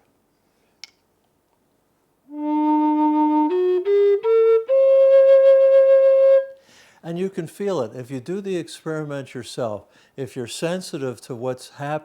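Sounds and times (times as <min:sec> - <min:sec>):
flute notes: 0:02.3 - 0:06.6.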